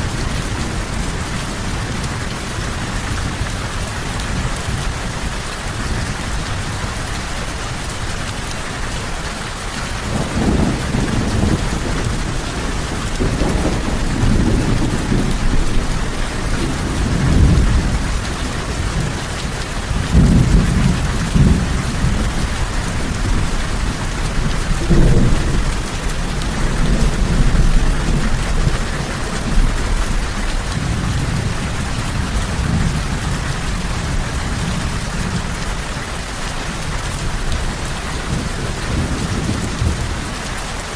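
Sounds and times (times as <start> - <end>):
heavy rain: 0.0 - 40.9
rolling thunder: 10.0 - 35.6, 37.3 - 40.4.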